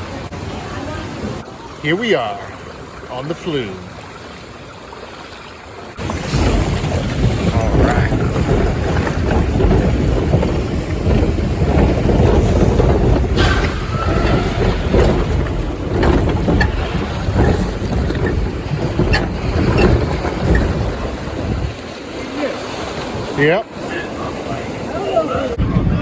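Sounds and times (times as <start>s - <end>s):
water rushing along flume: 0.0s - 26.0s
wind buffeting microphone: 5.9s - 26.0s.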